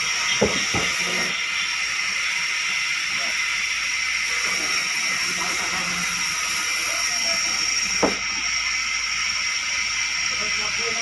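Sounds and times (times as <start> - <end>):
sawmill saw running: 0.0 - 11.0.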